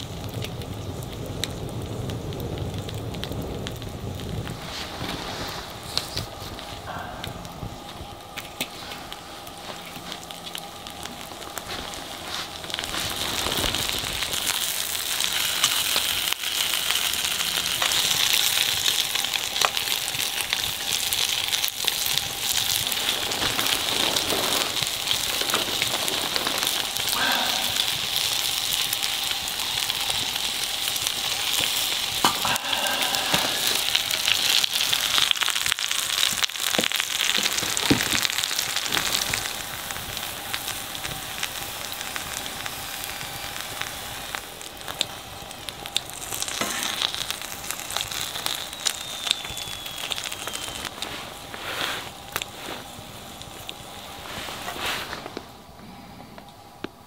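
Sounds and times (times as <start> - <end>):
fat and wood popping: 0.0 - 53.8
food sizzling in a pan: 7.8 - 55.3.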